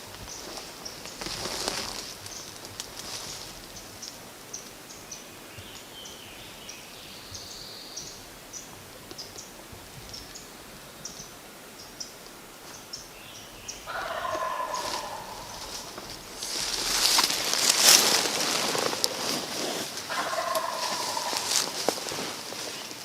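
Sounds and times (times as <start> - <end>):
songbird chirps: 0.0 - 19.2
turkey gobbling: 13.8 - 16.6, 20.1 - 21.8.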